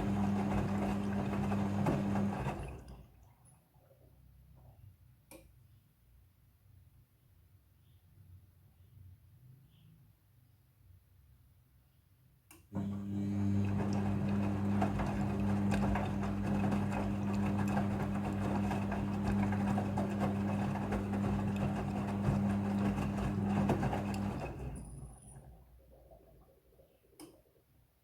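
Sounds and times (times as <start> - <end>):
washing machine humming and rattling: 0.0 - 3.3, 12.8 - 25.9.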